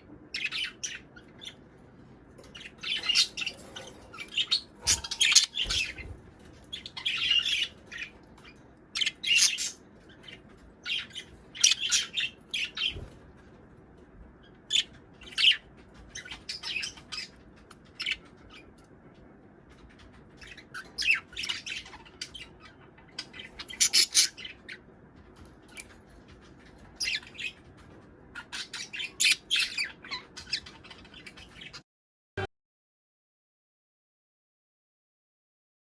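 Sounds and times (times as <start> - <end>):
budgerigars chattering and squawking: 0.0 - 13.2, 14.4 - 18.9, 19.8 - 24.9, 25.6 - 31.8.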